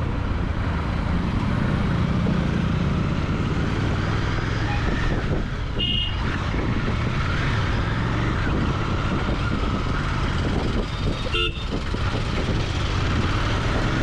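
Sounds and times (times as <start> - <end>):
motorcycle engine and exhaust running: 1.2 - 14.0
horn toot: 11.3 - 11.8.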